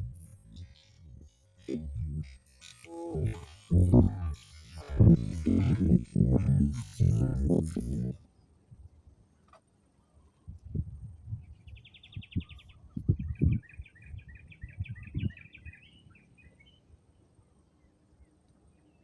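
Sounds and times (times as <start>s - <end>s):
low thumps: 0.0s - 8.2s.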